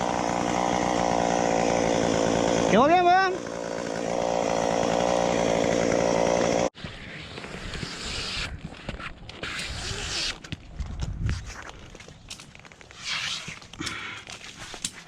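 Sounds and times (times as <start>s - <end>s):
chainsaw running: 0.0s - 6.8s.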